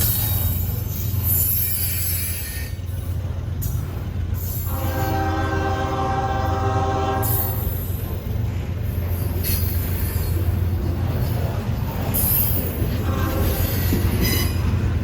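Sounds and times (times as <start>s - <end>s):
train rumbling: 0.0s - 15.0s
locomotive horn blast: 4.6s - 7.6s, 12.9s - 14.7s.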